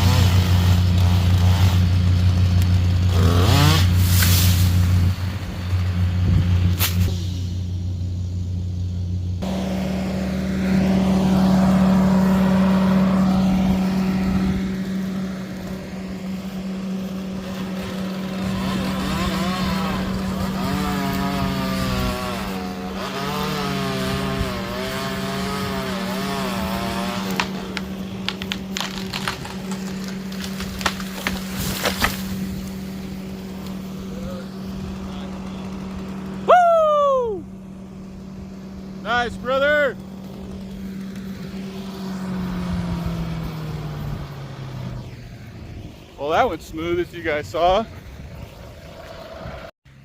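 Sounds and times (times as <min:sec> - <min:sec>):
chainsaw running at high revs: 0:00.0 - 0:04.4, 0:09.4 - 0:36.5, 0:37.5 - 0:44.7
wood cracking and knocking: 0:27.2 - 0:32.7.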